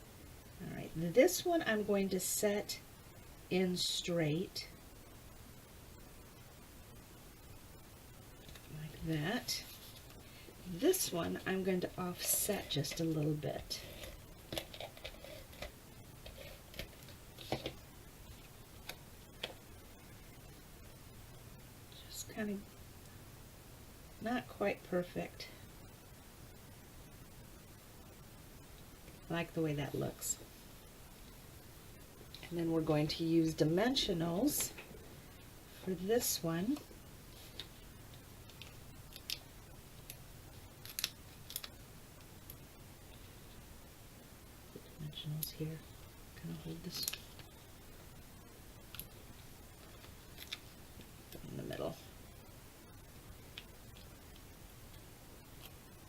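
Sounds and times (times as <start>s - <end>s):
paper clicks and crinkles: 40.8s - 41.8s.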